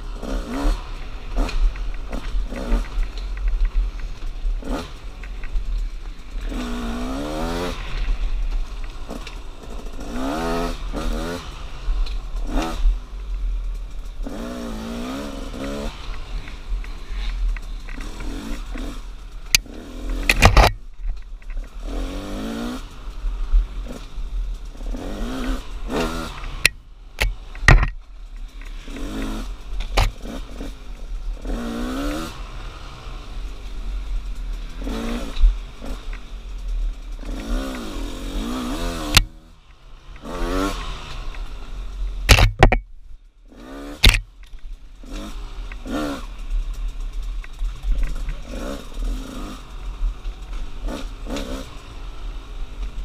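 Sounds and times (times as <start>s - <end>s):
dirt bike engine revving: 0.0s - 20.8s, 21.5s - 42.8s, 43.5s - 53.0s
sharp knocks and clatter: 15.4s - 21.8s, 24.9s - 30.7s, 42.2s - 42.9s, 44.0s - 49.5s.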